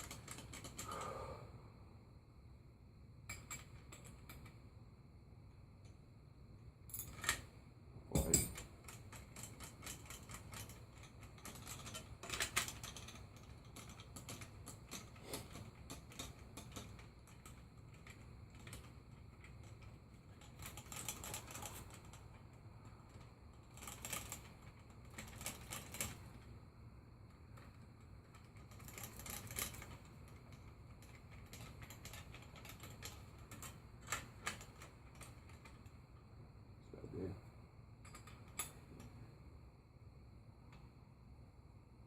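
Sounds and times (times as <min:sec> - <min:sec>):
faint low hum: 0:00.0 - 0:42.0
tools clinking on metal parts: 0:08.1 - 0:17.0.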